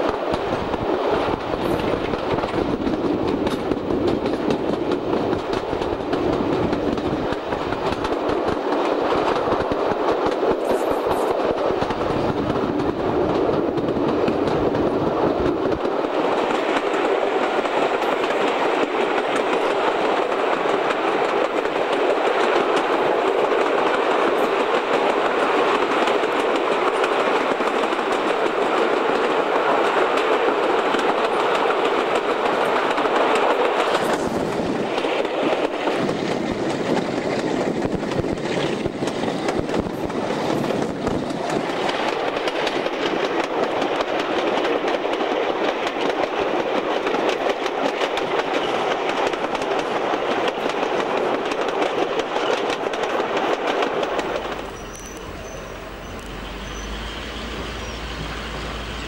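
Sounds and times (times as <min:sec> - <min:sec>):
wheels clicking over rail joints: 0:00.0 - 0:57.1
locomotive engines roaring: 0:54.0 - 0:59.0.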